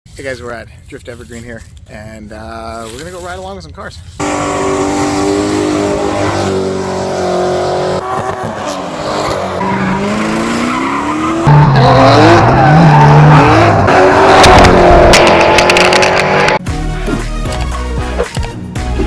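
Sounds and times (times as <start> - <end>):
car engines revving: 4.2 - 18.3.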